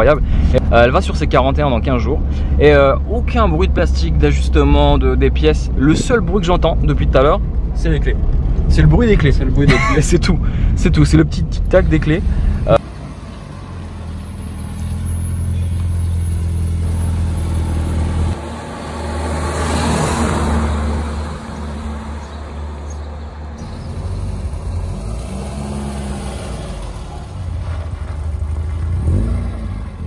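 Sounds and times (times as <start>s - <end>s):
car engine: 0.0s - 30.0s
engine revving: 14.0s - 30.0s.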